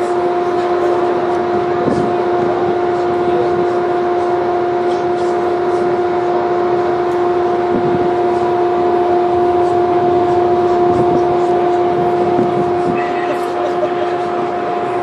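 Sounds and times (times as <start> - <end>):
loud rushing noise: 0.0 - 15.0
steady machine hum: 0.0 - 15.0.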